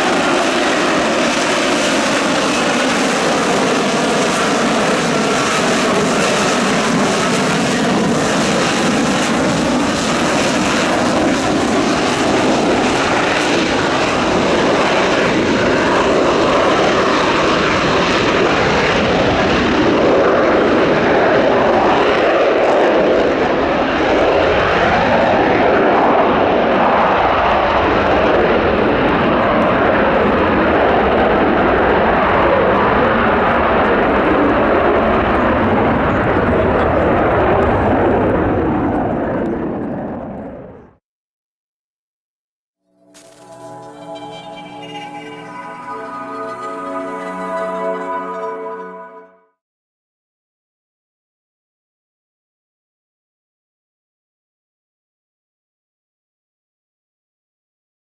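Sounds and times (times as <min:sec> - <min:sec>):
jet engine roaring: 0:00.0 - 0:37.8.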